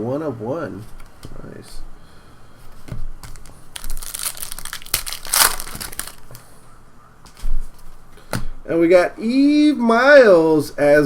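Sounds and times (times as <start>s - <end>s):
wrappers crinkling and rustling: 3.3s - 6.5s.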